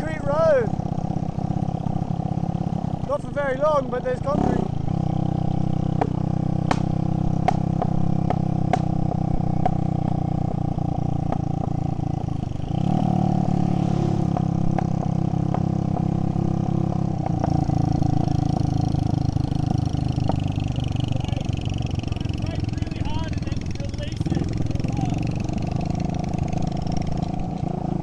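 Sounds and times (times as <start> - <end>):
motorbike engine running: 0.0 - 28.0
sharp clicks and knocks: 6.0 - 8.9.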